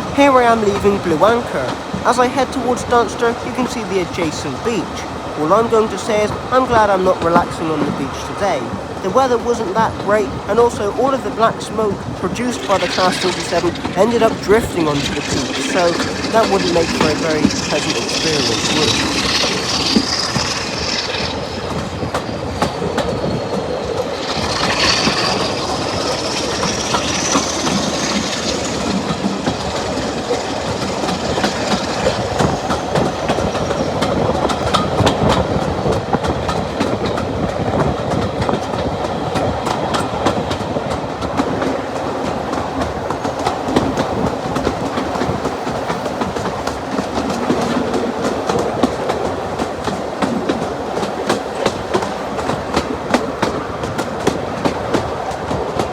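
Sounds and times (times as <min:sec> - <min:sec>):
high-pitched squeal: 0:00.0 - 0:34.2
train wheels clicking over rails: 0:00.0 - 0:55.9.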